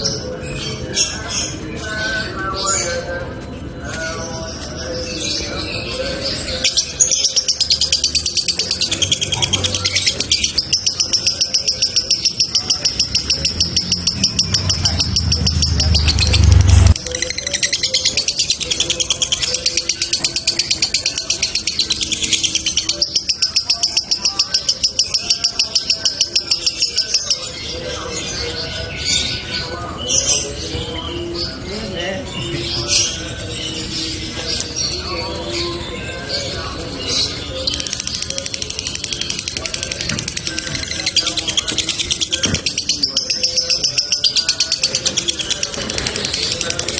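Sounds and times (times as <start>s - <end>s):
lovebird trilling chatter: 6.6s - 27.5s.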